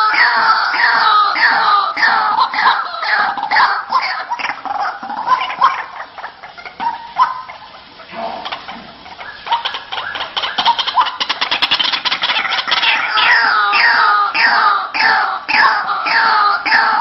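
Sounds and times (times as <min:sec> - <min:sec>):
waterhen calling harsh notes: 0:00.0 - 0:17.0.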